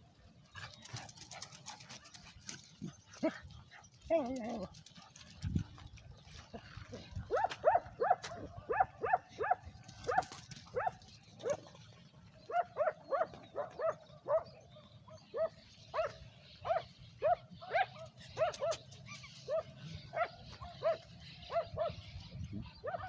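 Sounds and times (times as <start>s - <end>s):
dog barking: 7.3s - 11.6s, 12.5s - 14.5s, 15.3s - 18.8s, 19.5s - 22.0s.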